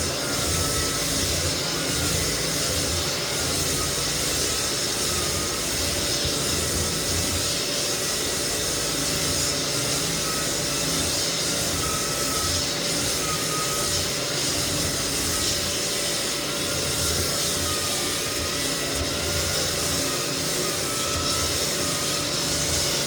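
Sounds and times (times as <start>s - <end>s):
floor sander running: 0.0s - 23.0s.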